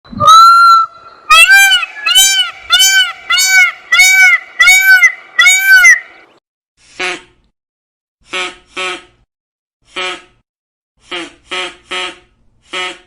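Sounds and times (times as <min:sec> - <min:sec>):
rising and falling animal call: 0:00.1 - 0:06.2.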